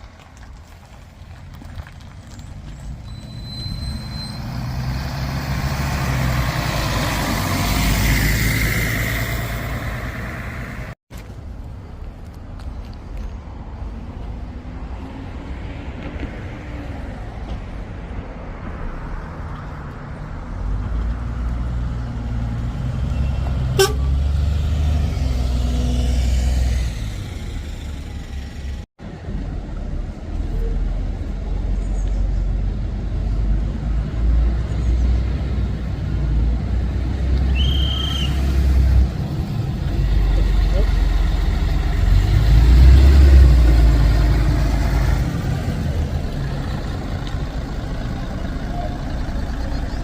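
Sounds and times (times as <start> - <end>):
bus engines rumbling: 0.0 - 50.0
vehicle horn toot: 23.1 - 24.2.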